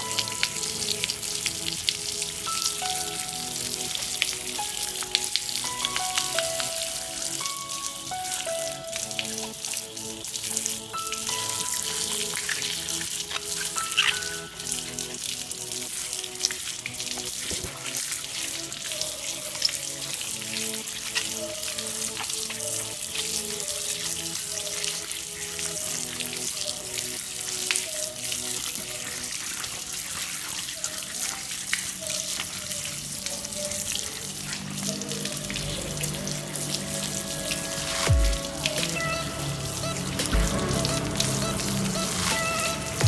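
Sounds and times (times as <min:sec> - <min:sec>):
background music with simple melody: 0:00.0 - 0:43.0
water spraying: 0:00.0 - 0:43.0.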